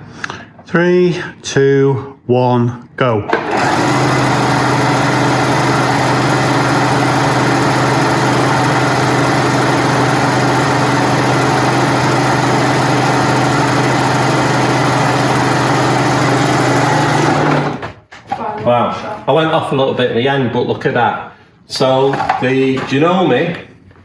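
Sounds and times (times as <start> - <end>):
sewing machines whirring: 3.3 - 17.9.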